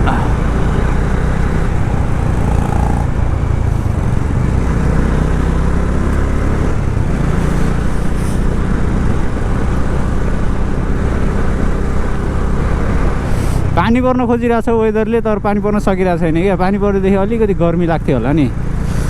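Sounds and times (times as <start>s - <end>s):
motorcycle engine running: 0.0s - 13.3s
road and wind noise: 0.0s - 19.0s.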